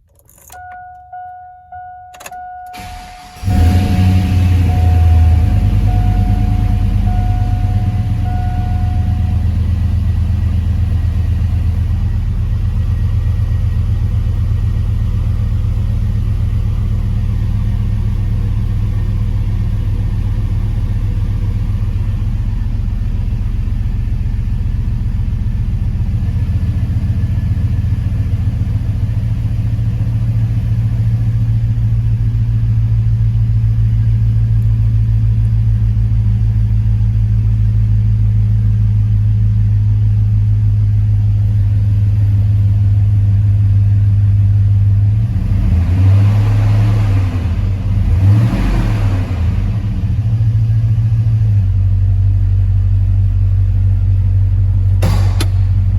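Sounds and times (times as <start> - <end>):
dashboard chime beeping: 0.4 - 10.3
truck engine idling: 0.8 - 45.2, 49.3 - 55.9.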